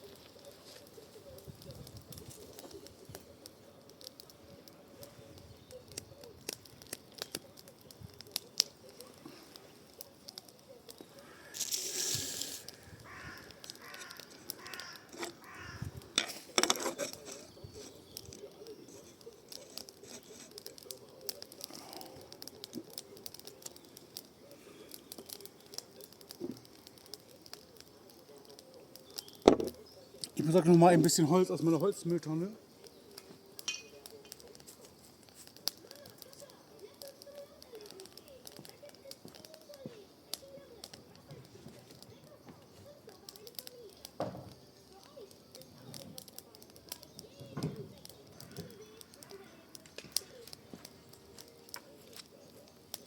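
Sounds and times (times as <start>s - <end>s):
burning wood snapping: 0.0s - 53.0s
wood fire crackling: 0.0s - 53.0s
birds calling: 12.6s - 20.4s.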